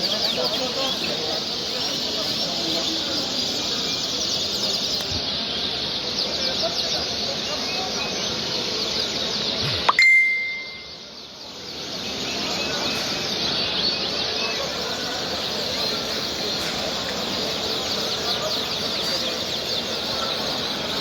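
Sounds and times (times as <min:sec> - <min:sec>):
songbirds chirping and singing: 0:00.0 - 0:21.0
brief ringing tone: 0:09.9 - 0:10.9.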